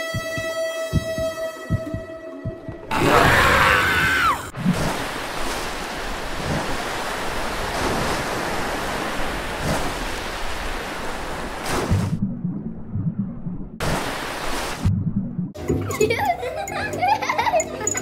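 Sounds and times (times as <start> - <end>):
wind: 2.7 - 12.2
rough sea waves washing: 4.4 - 12.2, 13.8 - 14.9.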